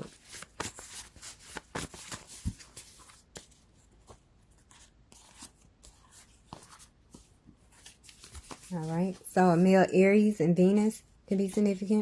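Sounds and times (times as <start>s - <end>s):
cards shuffling with papery clicks: 0.0s - 9.2s.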